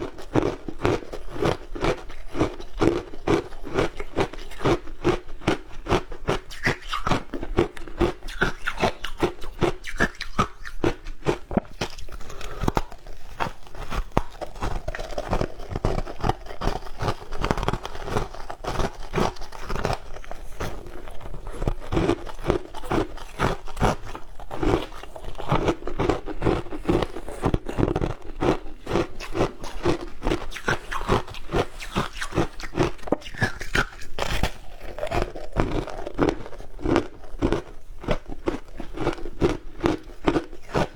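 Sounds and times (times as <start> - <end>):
person chewing crunchy ice: 0.0 - 40.9.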